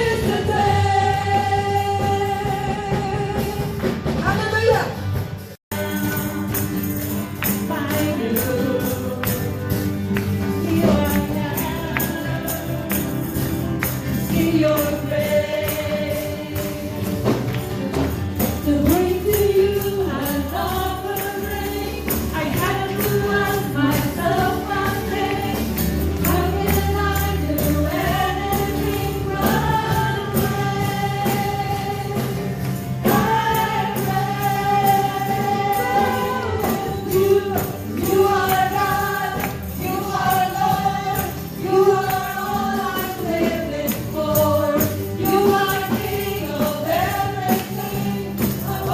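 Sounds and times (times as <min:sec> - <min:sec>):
voices singing with band: 0:00.0 - 0:48.9
tambourine: 0:05.0 - 0:48.9.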